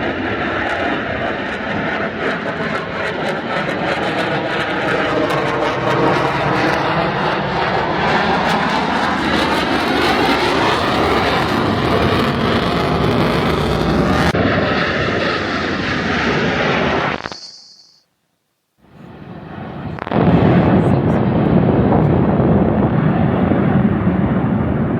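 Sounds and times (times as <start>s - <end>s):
airplane flying past: 0.0s - 17.2s.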